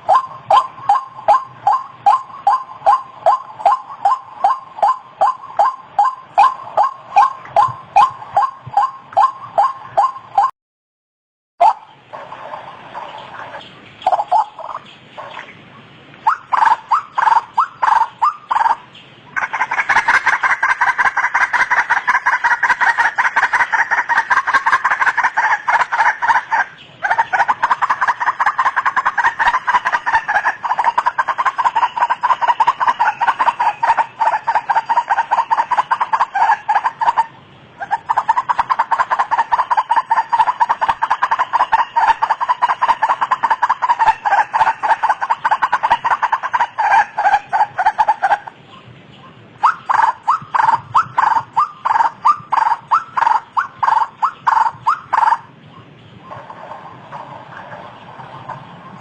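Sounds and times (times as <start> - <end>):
waterhen calling: 0.0 - 10.5, 11.6 - 59.0.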